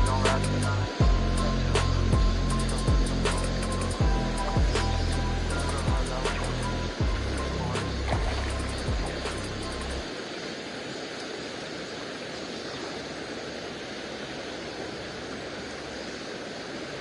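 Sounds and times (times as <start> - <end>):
music bass: 0.0 - 10.0
mountain stream rushing: 0.0 - 17.0.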